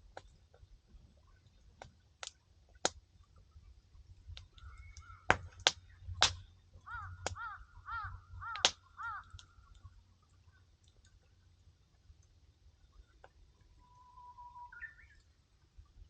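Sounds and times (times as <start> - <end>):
firewood crackling: 0.0 - 13.4
bird calling: 4.5 - 6.0, 6.8 - 9.7, 13.8 - 15.2.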